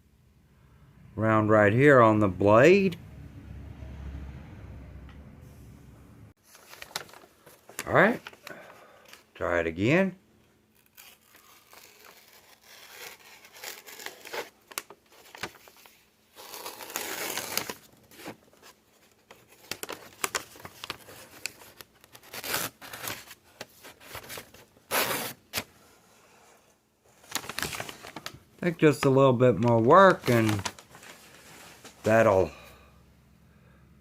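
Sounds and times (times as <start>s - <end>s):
paper crinkling and tearing: 6.4s - 9.3s, 10.7s - 25.7s, 27.1s - 32.3s
knife slicing through paper: 10.8s - 14.6s, 16.4s - 18.4s.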